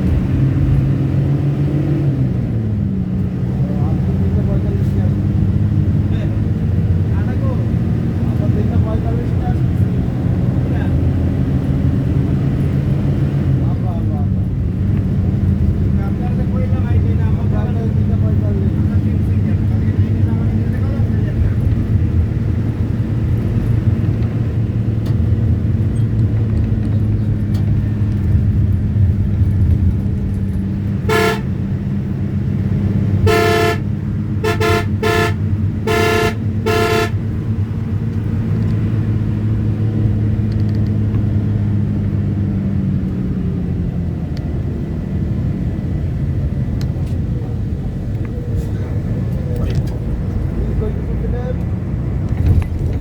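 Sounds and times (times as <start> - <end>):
vehicle engine running: 0.0 - 53.0
horn honking: 31.0 - 31.8, 33.1 - 37.4.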